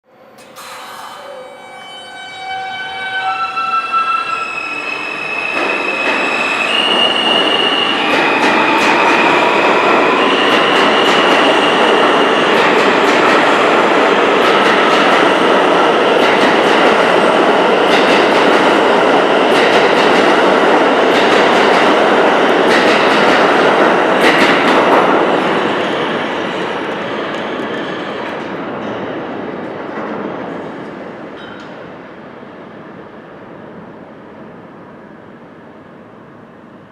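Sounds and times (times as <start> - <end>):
subway train propulsion whine: 0.1 - 36.9
train wheels rumbling on rails: 4.6 - 32.1.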